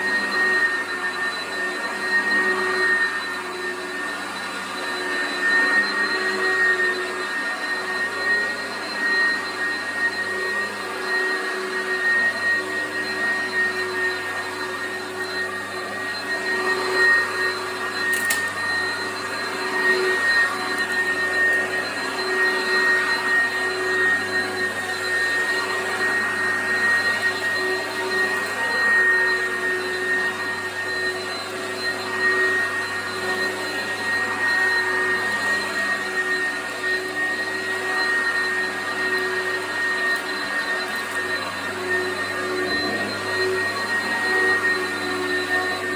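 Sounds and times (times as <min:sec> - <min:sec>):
vacuum cleaner running: 0:00.0 - 0:45.9.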